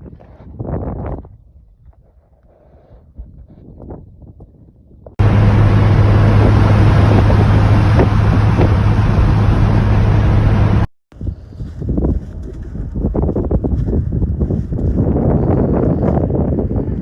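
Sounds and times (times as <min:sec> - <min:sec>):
low engine drone: 0:05.2 - 0:10.9
wind and road noise: 0:05.2 - 0:17.0.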